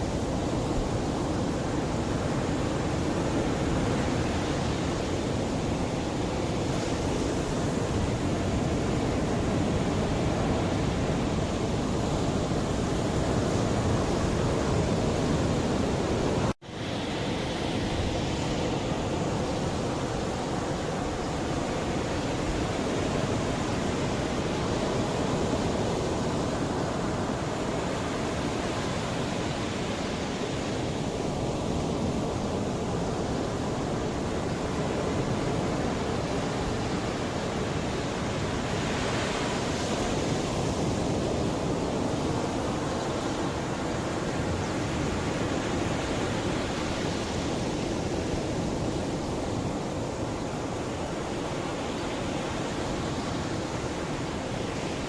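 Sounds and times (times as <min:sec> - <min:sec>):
sea waves washing onto shore: 0:00.0 - 0:55.0.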